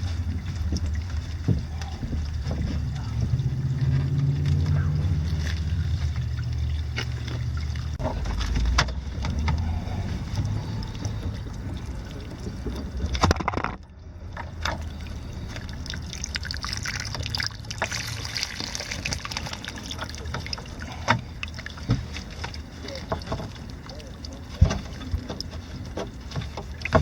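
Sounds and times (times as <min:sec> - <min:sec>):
low steady hum: 0:00.0 - 0:27.0
water trickling and sloshing: 0:00.0 - 0:27.0
clicks and knocks: 0:12.7 - 0:14.8.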